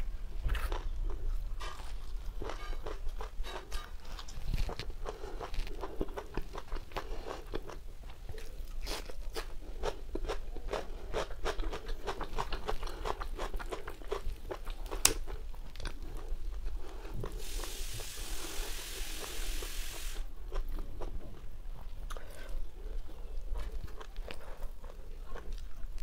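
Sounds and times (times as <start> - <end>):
chewing and crunching: 0.0 - 17.8, 20.3 - 26.0
steady hiss: 17.3 - 20.3.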